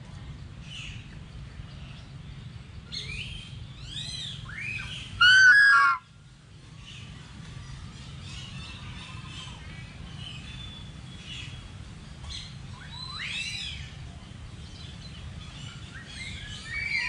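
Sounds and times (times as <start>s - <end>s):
birds chirping and whistling: 2.9s - 6.0s, 12.3s - 14.0s, 14.8s - 17.0s
harsh bird call: 4.8s - 6.1s.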